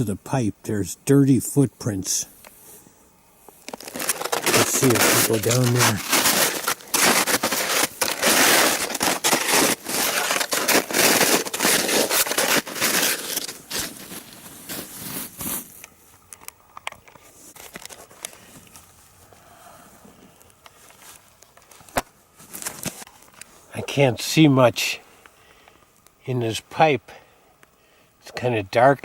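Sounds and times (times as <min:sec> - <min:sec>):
footsteps crunching on a slope: 0:03.6 - 0:15.8.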